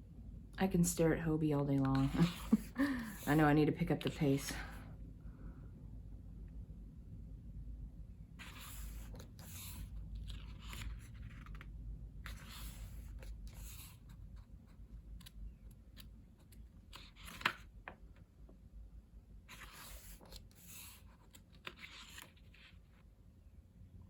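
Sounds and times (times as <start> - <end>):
paper pages rustling: 1.9 - 2.7, 8.4 - 14.1, 15.2 - 18.0, 19.5 - 23.0.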